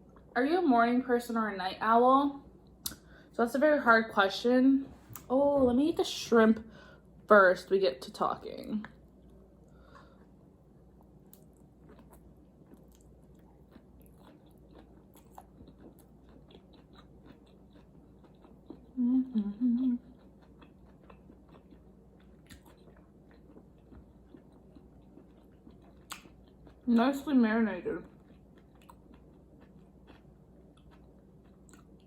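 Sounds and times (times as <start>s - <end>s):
faint chewing and mouth clicks: 8.7s - 27.2s, 28.0s - 32.0s
person humming: 19.0s - 20.0s.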